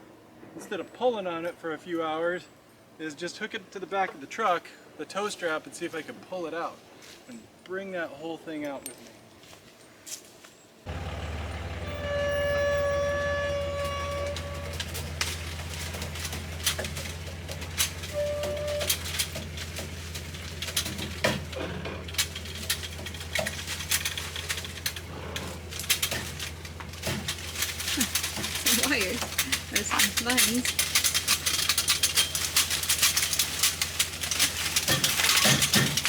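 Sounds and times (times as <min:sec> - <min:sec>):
sharp clicks and rattles: 0:10.9 - 0:36.0
truck engine running: 0:10.9 - 0:36.0
held tone: 0:11.5 - 0:14.8.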